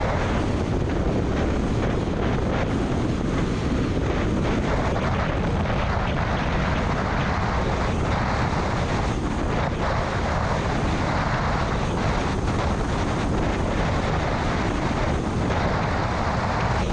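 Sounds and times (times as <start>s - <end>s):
road noise: 0.0s - 16.9s
wind rushing: 0.0s - 16.9s.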